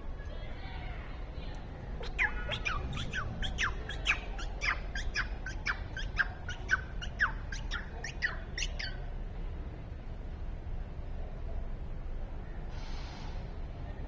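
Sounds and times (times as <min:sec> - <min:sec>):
bird chirping: 0:01.8 - 0:09.1.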